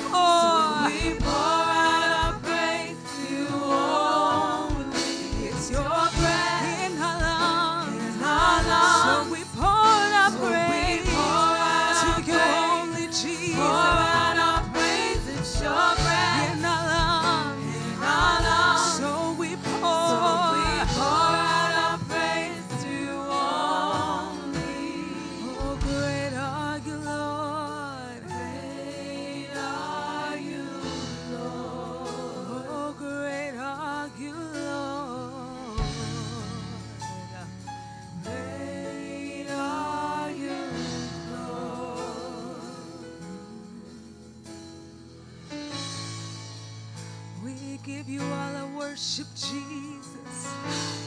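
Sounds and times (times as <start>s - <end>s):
band accompaniment: 0.0s - 51.0s.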